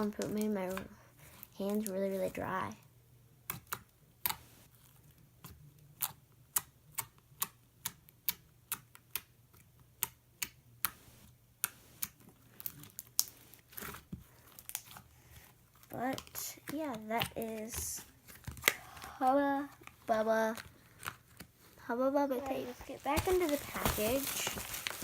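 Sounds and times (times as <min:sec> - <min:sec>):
slime air pockets popping: 0:22.5 - 0:25.0.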